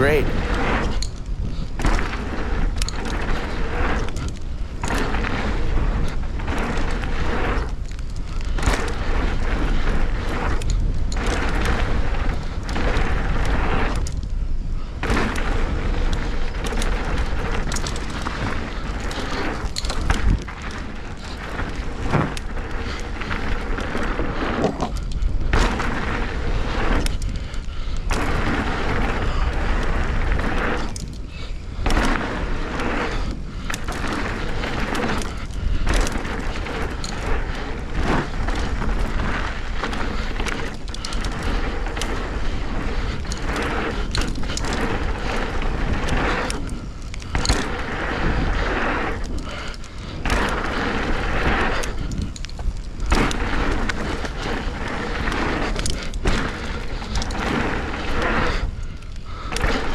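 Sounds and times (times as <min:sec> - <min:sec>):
wind and tyre noise: 0:00.0 - 0:59.9.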